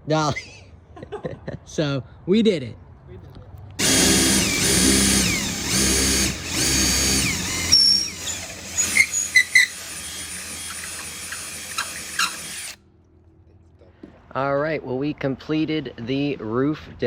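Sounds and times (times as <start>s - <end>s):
power drill driving screws: 3.8s - 12.8s.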